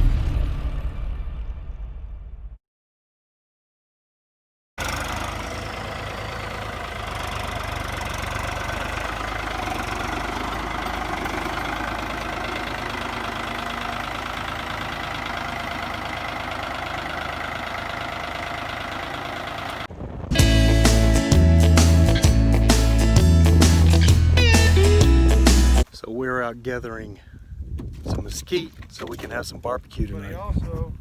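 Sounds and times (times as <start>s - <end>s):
vehicle engine running: 4.8s - 25.9s.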